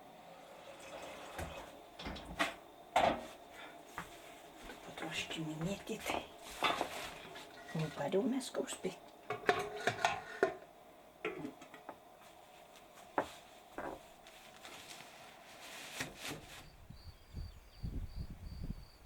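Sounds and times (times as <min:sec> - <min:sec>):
kitchen knocks and clatters: 0:01.4 - 0:03.4, 0:06.6 - 0:07.9, 0:09.2 - 0:12.0, 0:13.2 - 0:14.1
crickets chirping: 0:01.7 - 0:09.3, 0:16.6 - 0:19.0
wind gusting on microphone: 0:16.6 - 0:19.0.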